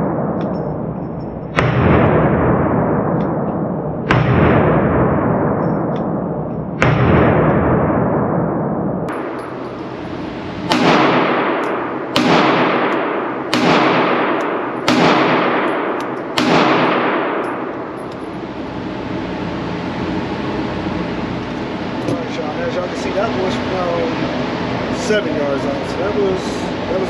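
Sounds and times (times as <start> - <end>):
pistol shots echoing: 10.6 - 18.6.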